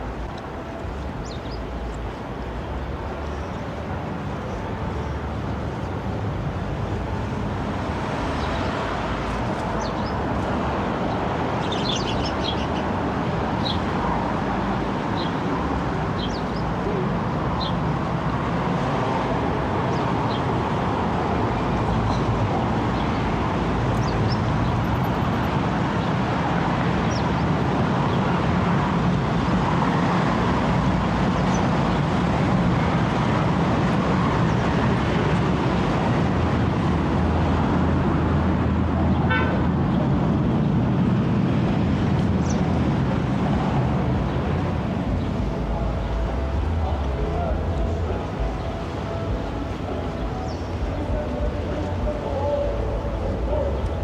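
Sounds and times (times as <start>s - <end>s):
road traffic hum: 0.0s - 54.0s.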